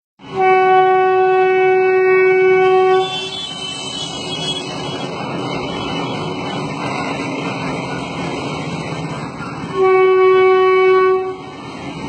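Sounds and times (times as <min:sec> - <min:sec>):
train running noise: 0:00.2 - 0:12.0
train horn: 0:00.3 - 0:04.7, 0:09.7 - 0:11.6.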